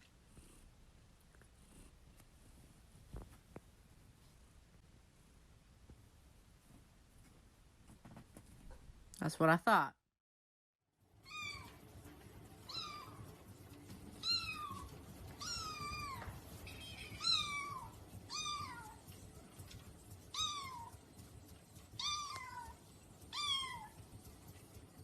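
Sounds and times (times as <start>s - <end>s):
cat meowing: 14.2s - 19.0s, 22.0s - 24.0s.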